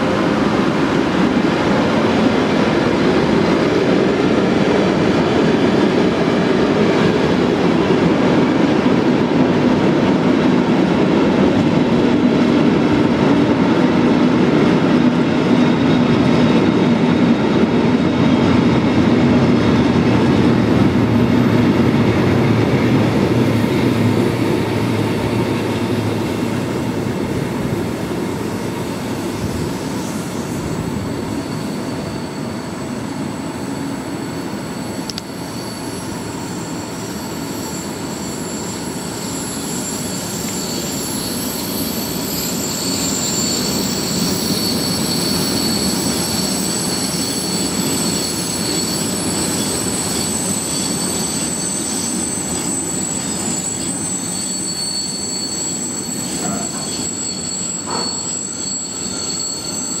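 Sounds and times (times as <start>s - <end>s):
train wheels rumbling on rail: 0.0s - 60.0s
high wheel squeal: 15.2s - 60.0s.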